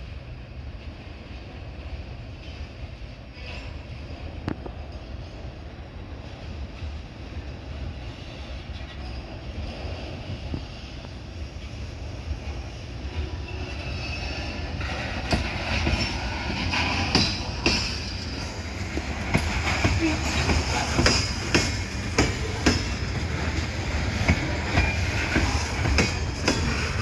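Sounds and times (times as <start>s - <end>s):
freight cars rumbling: 4.2s - 27.0s
wheel squeal: 13.2s - 18.5s.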